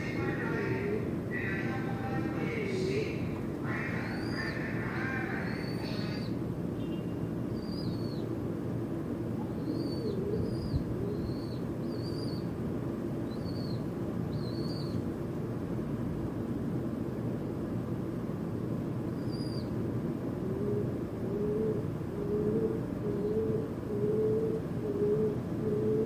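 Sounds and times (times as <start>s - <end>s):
steady low rumble: 0.0s - 6.6s
low cooing: 9.4s - 11.6s, 20.4s - 26.0s.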